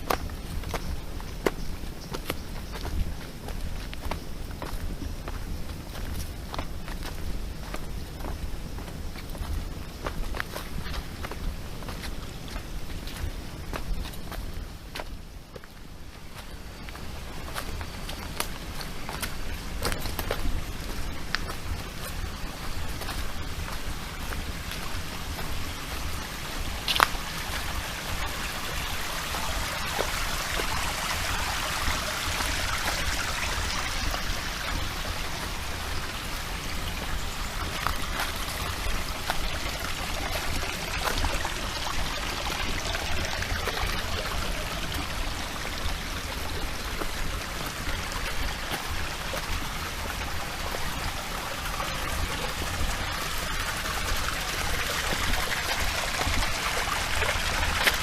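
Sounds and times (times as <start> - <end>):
mountain stream trickling: 0.0 - 58.0.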